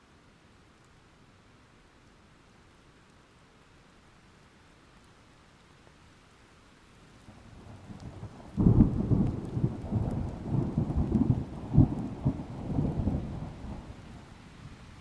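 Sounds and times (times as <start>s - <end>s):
light rain: 0.0s - 15.0s
thunder rumbling and crackling: 7.5s - 15.0s.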